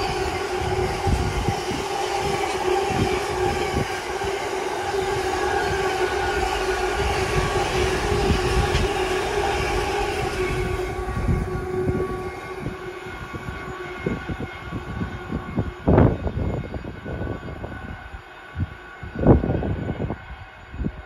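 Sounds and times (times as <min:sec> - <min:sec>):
low thumps and rumbles: 0:00.0 - 0:16.6
passing train rumble: 0:00.0 - 0:21.0
train whining tones: 0:00.0 - 0:21.0.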